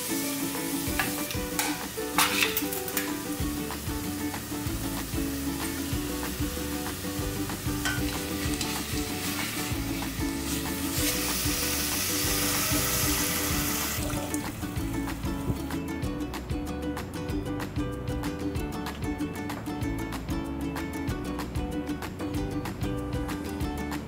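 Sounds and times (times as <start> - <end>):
vegetables sizzling in pot: 0.0 - 15.8
background music: 0.0 - 24.0.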